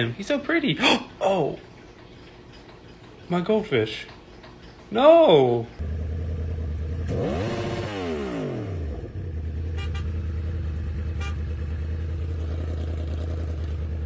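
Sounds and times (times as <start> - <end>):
vehicle engine humming: 5.7 - 14.0
engine sound falling in pitch: 5.8 - 14.0.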